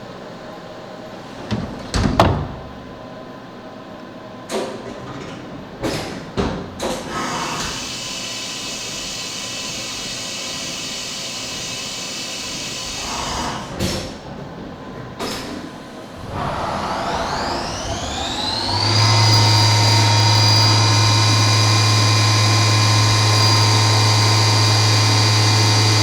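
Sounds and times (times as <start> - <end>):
milling machine clunks: 1.2 - 3.0
milling machine hiss: 7.1 - 14.0.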